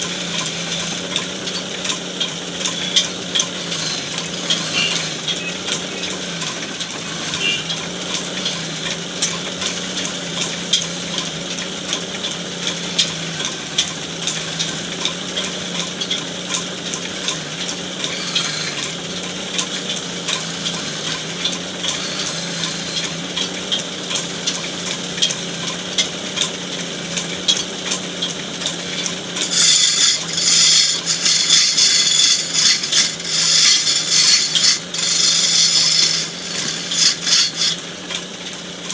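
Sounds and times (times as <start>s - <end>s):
woodworking machine motor humming: 0.0s - 38.9s
tool rasping against wood: 2.9s - 5.4s, 18.0s - 24.7s, 28.7s - 37.9s.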